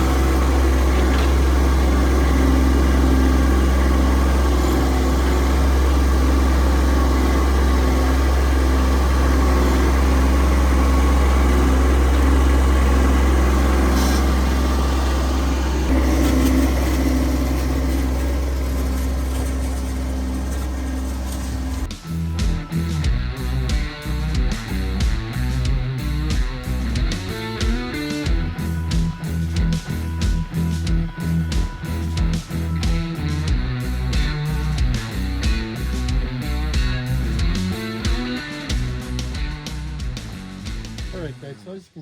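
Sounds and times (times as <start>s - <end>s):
diesel tractor engine running: 0.0s - 41.4s
music: 21.8s - 41.8s.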